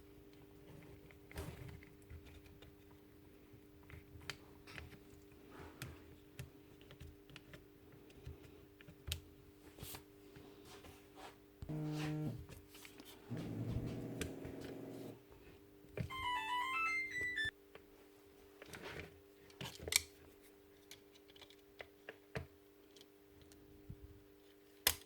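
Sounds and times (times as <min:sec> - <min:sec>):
steady low hum: 0:11.6 - 0:12.4, 0:13.3 - 0:15.2
small parts clicking and tapping: 0:20.8 - 0:22.2.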